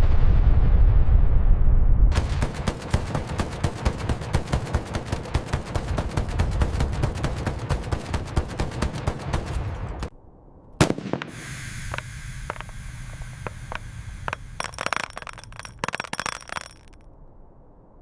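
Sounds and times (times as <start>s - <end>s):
rapid automatic cannon fire: 2.1s - 10.1s, 10.8s - 11.6s
hiss: 11.1s - 14.6s.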